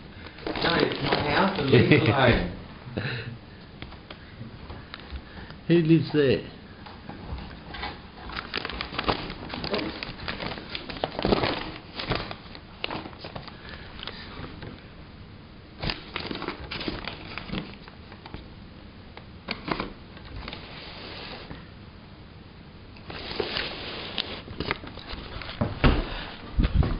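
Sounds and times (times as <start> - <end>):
paper bag rustling: 0.2 - 2.4, 7.8 - 13.6, 15.8 - 18.3, 19.6 - 21.6, 23.1 - 26.4.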